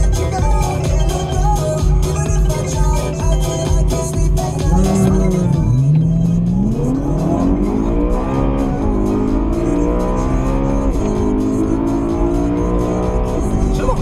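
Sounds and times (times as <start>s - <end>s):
car engine accelerating hard: 4.4s - 14.0s.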